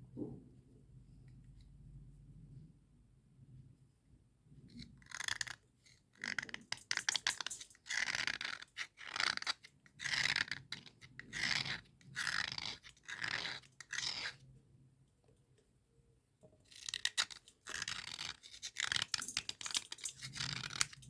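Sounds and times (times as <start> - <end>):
slate pencils scraping: 6.2 - 14.4, 16.7 - 21.0.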